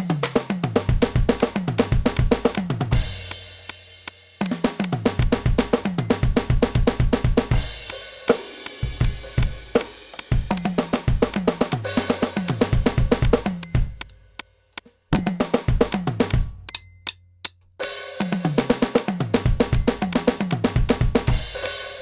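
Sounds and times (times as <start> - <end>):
electronic drum kit playing: 0.0 - 14.2, 15.1 - 16.8, 17.8 - 22.0
cymbal ringing: 7.6 - 11.2, 11.8 - 14.3, 17.8 - 18.8.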